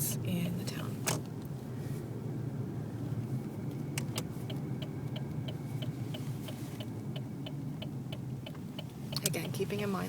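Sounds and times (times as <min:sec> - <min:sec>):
car engine and road rumble: 0:00.0 - 0:10.0
turn signal ticking: 0:03.7 - 0:10.0.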